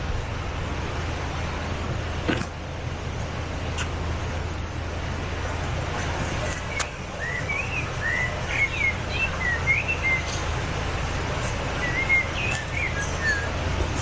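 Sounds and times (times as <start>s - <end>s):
diesel engine drone: 0.0s - 14.0s
songbird chirping: 6.2s - 14.0s.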